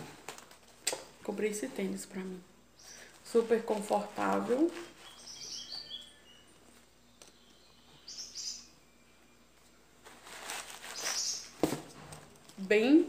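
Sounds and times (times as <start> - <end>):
bird chirping: 2.7 - 3.4, 4.7 - 9.8, 10.8 - 11.6.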